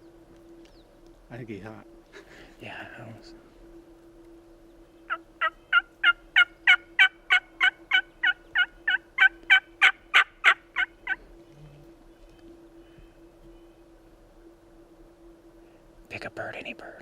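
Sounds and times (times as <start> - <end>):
turkey yelps: 5.1 - 11.2.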